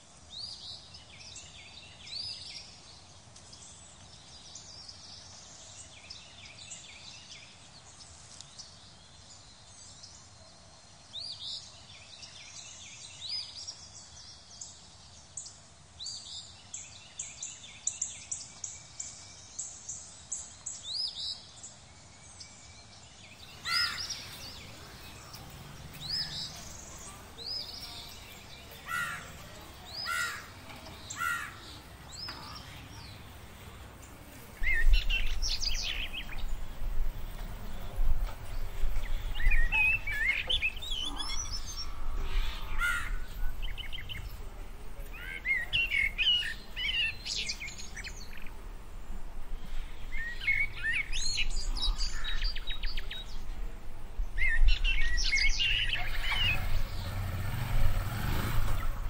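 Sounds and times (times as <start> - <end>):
birds chirping: 0.0 - 59.0
faint steady hiss: 0.0 - 59.0
lower bird calls: 23.3 - 48.7, 54.4 - 59.0.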